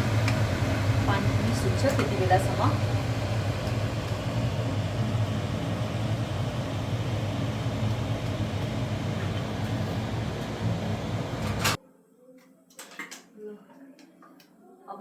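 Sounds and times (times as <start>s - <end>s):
low mechanical hum: 0.0s - 11.8s.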